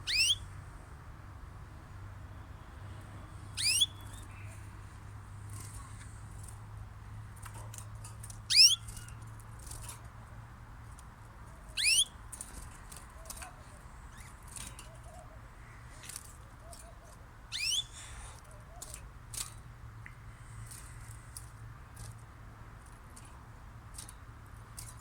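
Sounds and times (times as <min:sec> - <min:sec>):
shrill upward bird call: 0:00.0 - 0:00.4, 0:03.6 - 0:04.3, 0:08.5 - 0:08.9, 0:11.8 - 0:12.2, 0:17.5 - 0:18.0
faint bird chirps: 0:00.0 - 0:00.5, 0:03.5 - 0:04.7, 0:08.5 - 0:09.1, 0:11.7 - 0:12.2, 0:16.6 - 0:18.9.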